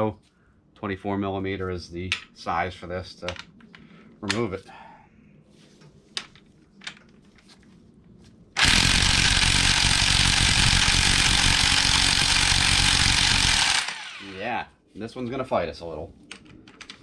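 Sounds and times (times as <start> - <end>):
impact wrench hammering: 8.6 - 14.2.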